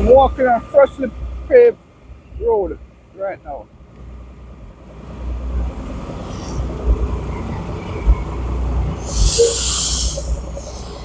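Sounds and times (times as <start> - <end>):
vehicle engine rumbling: 0.0 - 11.0
loud burst of hiss: 9.0 - 10.9.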